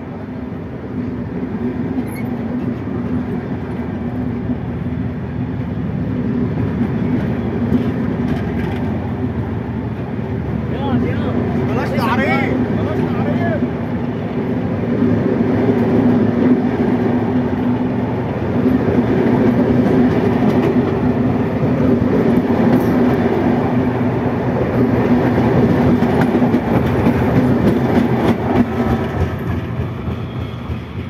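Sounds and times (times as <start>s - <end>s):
train rumbling hum: 0.0s - 31.0s
wheels clattering over rail joints: 6.6s - 13.2s, 24.6s - 31.0s.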